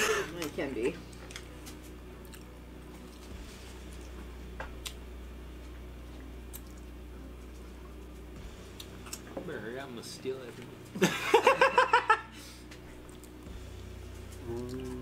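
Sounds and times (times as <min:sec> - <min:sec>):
people chewing food: 0:00.0 - 0:05.0, 0:05.6 - 0:09.3, 0:12.4 - 0:15.0
steady low hum: 0:00.0 - 0:15.0.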